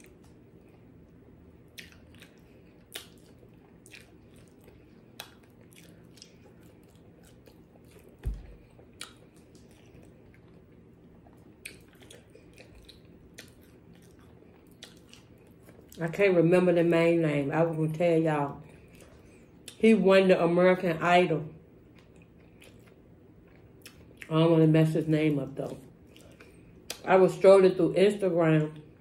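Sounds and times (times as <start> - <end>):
person chewing fried food: 0.0 - 16.0, 21.8 - 24.3, 25.9 - 27.0.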